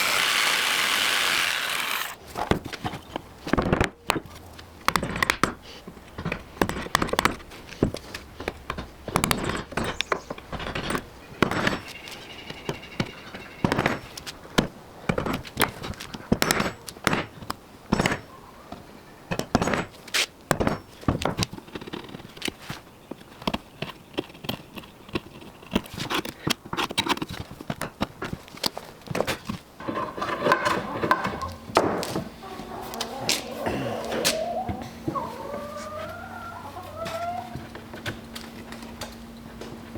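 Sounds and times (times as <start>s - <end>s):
knocks and scrapes of woodwork: 0.9s - 32.3s.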